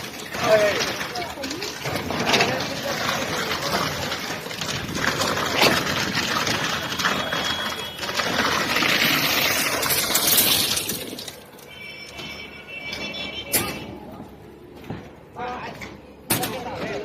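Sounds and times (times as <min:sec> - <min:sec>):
wet concrete rushing and splashing: 0:00.0 - 0:12.2.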